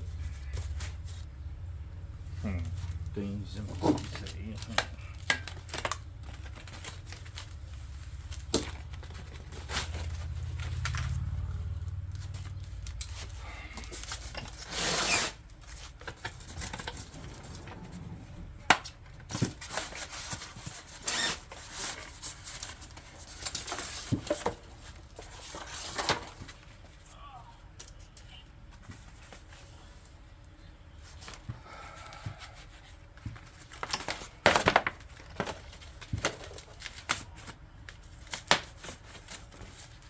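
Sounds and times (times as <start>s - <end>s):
packaging rustling: 2.7s - 26.8s.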